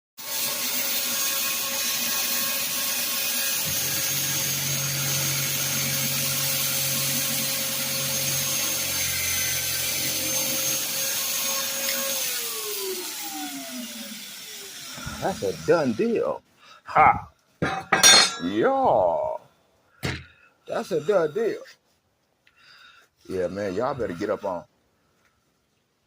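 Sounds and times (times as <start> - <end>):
power tool motor whining: 0.2 - 16.2.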